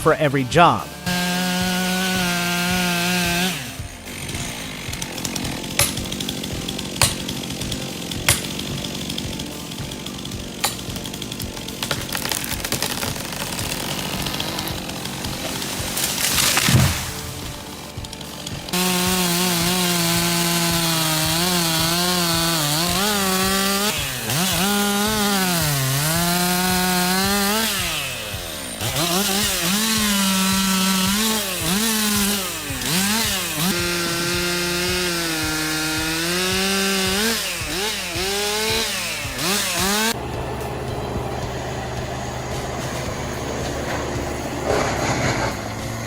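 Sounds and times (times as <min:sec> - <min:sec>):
chainsaw cutting wood: 0:00.0 - 0:46.0
low engine hum: 0:37.0 - 0:46.0.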